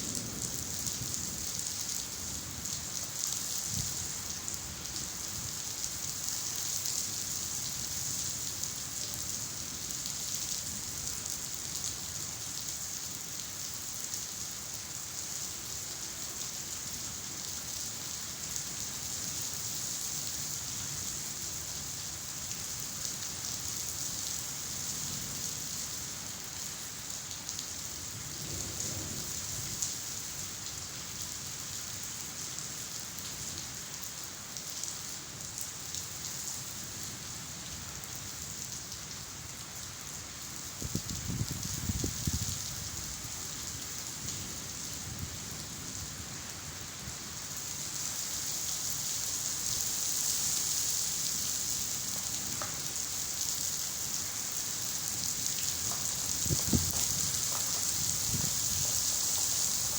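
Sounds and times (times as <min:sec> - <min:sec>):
steady rainfall: 0:00.0 - 0:59.9
low thunder rumble: 0:55.8 - 0:59.2.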